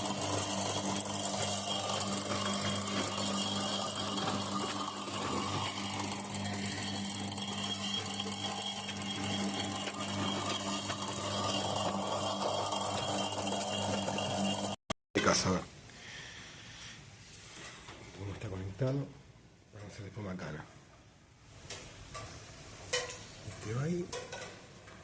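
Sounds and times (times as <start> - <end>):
washing machine spinning: 0.0 - 14.8.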